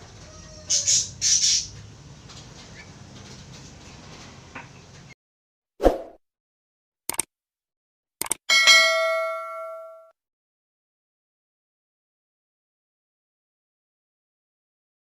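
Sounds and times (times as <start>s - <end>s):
clicks: 7.1s - 7.3s, 8.2s - 8.4s
bell-like chime: 8.5s - 10.1s.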